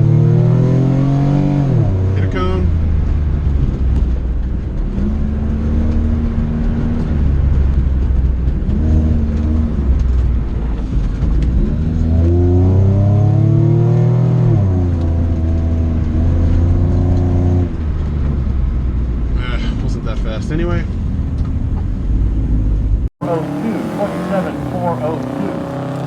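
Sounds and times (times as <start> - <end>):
car engine revving hard: 0.0 - 2.4, 11.5 - 17.7, 23.2 - 26.0.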